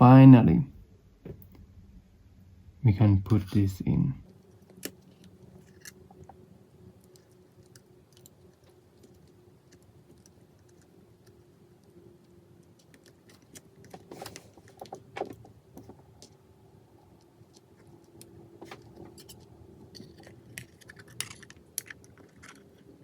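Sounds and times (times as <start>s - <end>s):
faint steady hum: 0.0s - 23.0s
light clicks of phone parts and tools: 17.2s - 23.0s.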